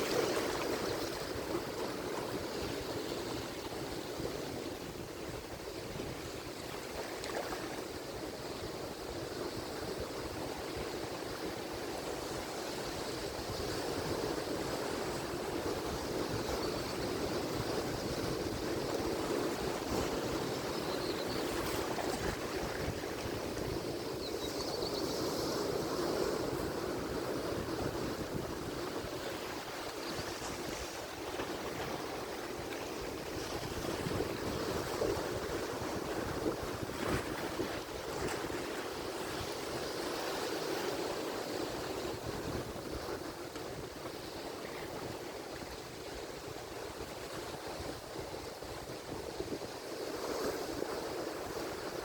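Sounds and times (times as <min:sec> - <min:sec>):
ocean waves breaking: 0:00.0 - 0:05.0.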